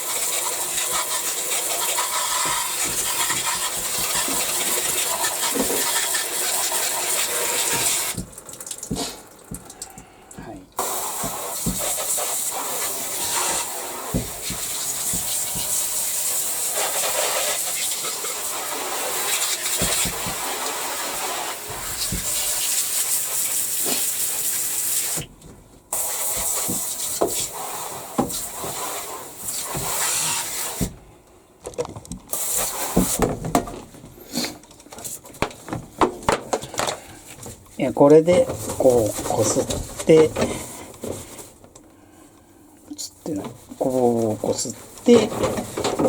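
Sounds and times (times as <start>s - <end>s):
tap water running: 0.0s - 42.2s, 43.2s - 46.0s.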